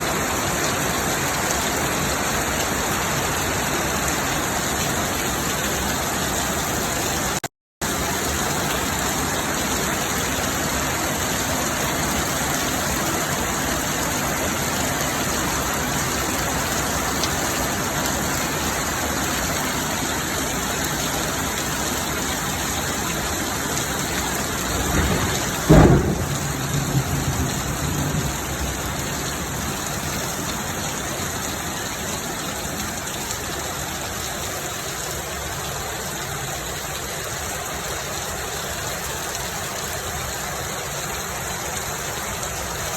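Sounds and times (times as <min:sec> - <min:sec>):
heavy rain pouring: 0:00.0 - 0:42.9
thunderclap rumbling: 0:24.5 - 0:29.6.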